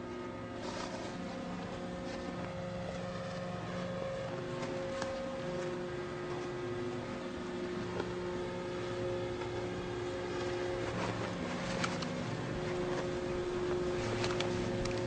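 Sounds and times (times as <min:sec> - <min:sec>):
wood chipper engine drone: 0:00.0 - 0:15.0.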